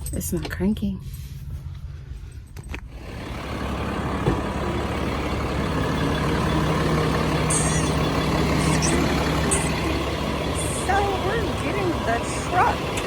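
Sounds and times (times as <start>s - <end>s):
truck diesel engine running: 2.9s - 13.0s.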